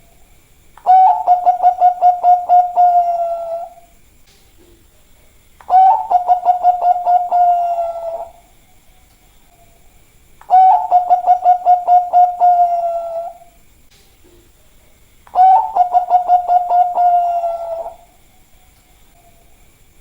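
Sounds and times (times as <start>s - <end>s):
dove cooing: 0.8s - 3.9s, 5.6s - 8.5s, 10.4s - 13.6s, 15.3s - 18.2s.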